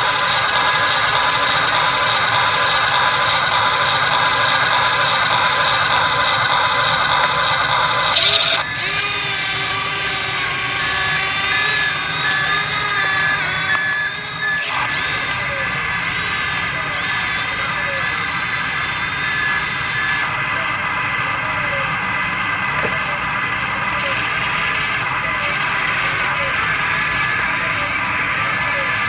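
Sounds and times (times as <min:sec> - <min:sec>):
electric motor and pump whine: 0:00.0 - 0:29.0.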